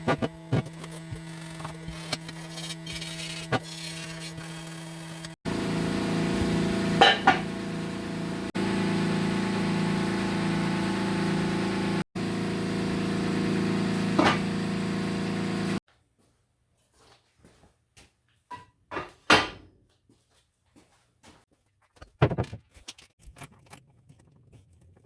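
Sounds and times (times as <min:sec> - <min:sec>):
electric machine hum: 0:00.3 - 0:15.8.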